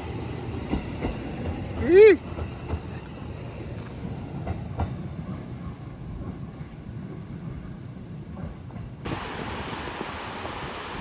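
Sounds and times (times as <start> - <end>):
train rumbling: 0.0 - 11.0
steady rushing hiss: 9.1 - 11.0.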